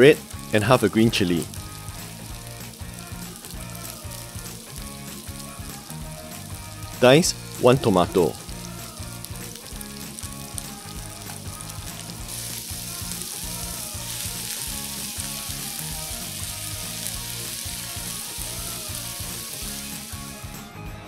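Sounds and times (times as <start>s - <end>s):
vegetables sizzling in oil: 0.0s - 20.6s.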